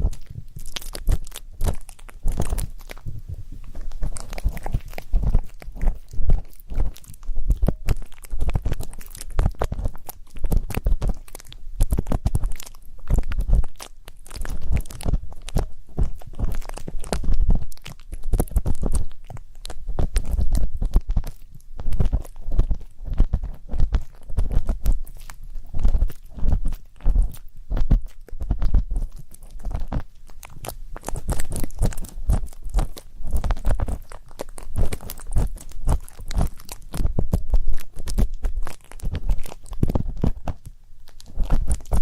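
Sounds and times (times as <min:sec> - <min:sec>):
soft low thumps: 0:00.0 - 0:11.2.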